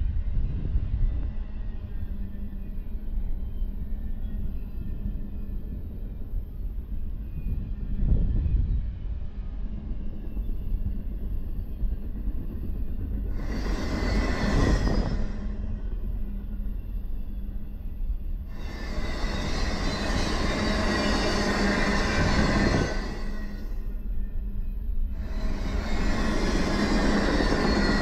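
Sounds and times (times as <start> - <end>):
freight train wheels rumbling: 0.0 - 28.0
wheels squealing and hissing: 13.3 - 17.7, 18.4 - 24.1, 25.1 - 28.0.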